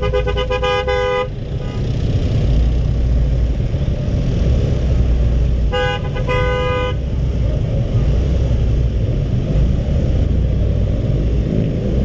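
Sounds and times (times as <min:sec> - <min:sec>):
vehicle horn tooting: 0:00.0 - 0:01.8, 0:05.7 - 0:07.0
steady low rumble: 0:00.0 - 0:12.0.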